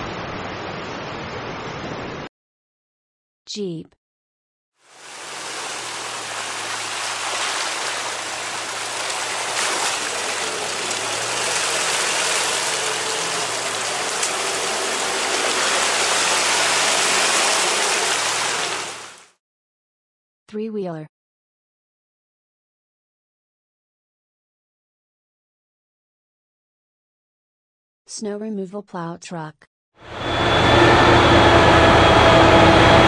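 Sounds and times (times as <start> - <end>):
water splashing and churning: 4.9 - 19.3
low engine hum: 5.0 - 19.2, 30.1 - 33.0.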